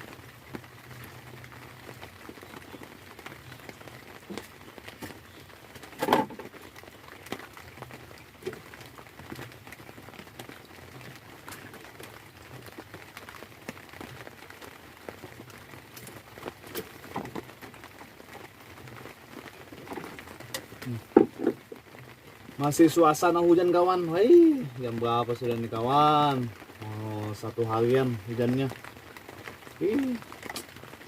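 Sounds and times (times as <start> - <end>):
rain falling: 0.0 - 31.0
drops tapping on hard surface: 21.1 - 21.6.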